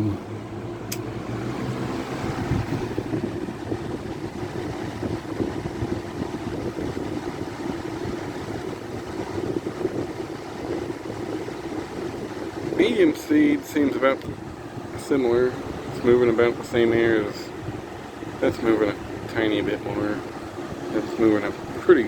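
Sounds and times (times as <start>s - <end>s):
fans rushing air: 0.0s - 22.0s
sharp click: 0.9s - 1.1s.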